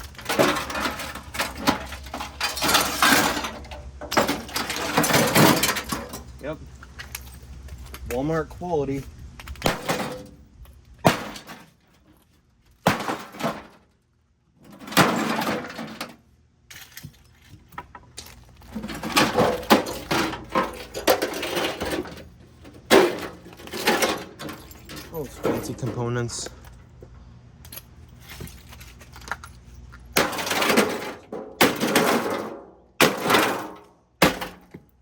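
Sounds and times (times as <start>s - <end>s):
microwave being smashed: 0.0s - 6.3s, 9.6s - 10.4s, 11.0s - 11.8s, 12.8s - 13.9s, 14.7s - 16.2s, 18.7s - 25.8s, 30.1s - 34.9s.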